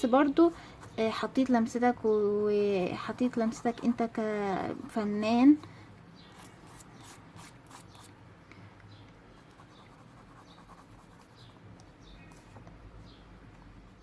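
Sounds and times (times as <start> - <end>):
pencil scratching on paper: 3.1 - 5.4, 6.4 - 8.1, 9.4 - 11.6.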